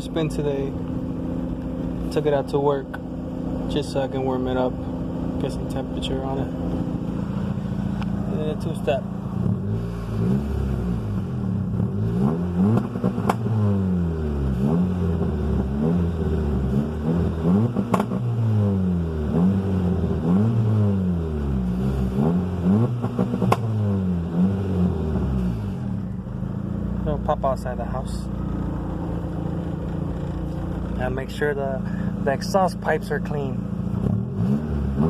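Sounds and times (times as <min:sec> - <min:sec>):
engine revving against limiter: 0:05.7 - 0:26.1, 0:33.9 - 0:35.0
exhaust pops: 0:12.7 - 0:13.5, 0:17.7 - 0:18.3, 0:23.0 - 0:23.8.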